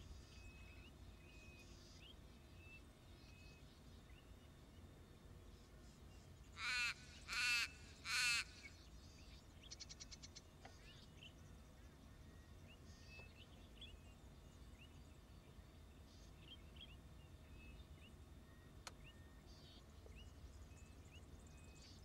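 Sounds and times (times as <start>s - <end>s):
small birds chirping: 0.0s - 22.0s
raven cawing harshly: 6.6s - 8.5s.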